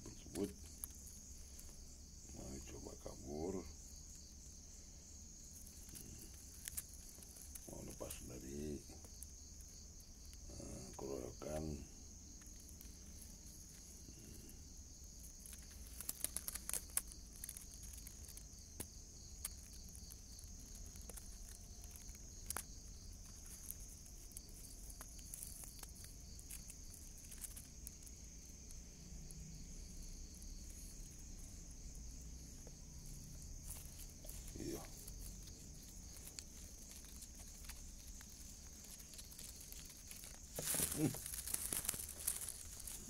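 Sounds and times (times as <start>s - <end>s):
night insects chorus: 0.0s - 43.0s
soft clicks and rustles: 0.1s - 28.8s, 29.8s - 43.0s.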